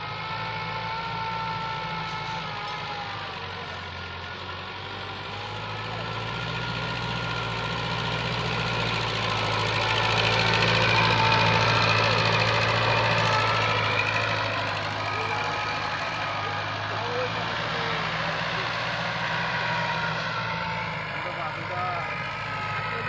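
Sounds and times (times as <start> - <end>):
tractor diesel engine humming: 0.0 - 23.0.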